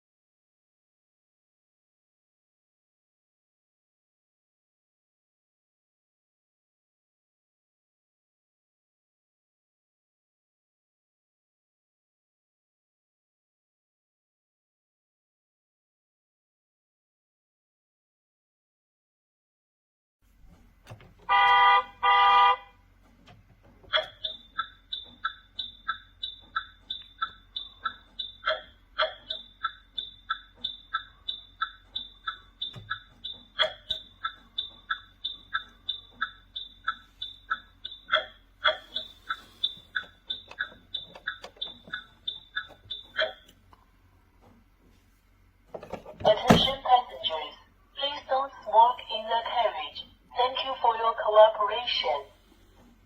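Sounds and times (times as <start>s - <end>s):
toy horn honks: 21.3s - 22.8s
high two-tone beeps: 24.2s - 43.4s.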